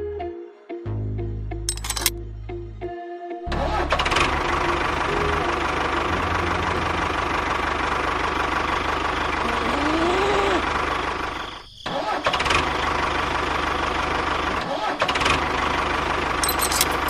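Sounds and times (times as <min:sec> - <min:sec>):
small tractor engine chugging: 0:03.8 - 0:17.0.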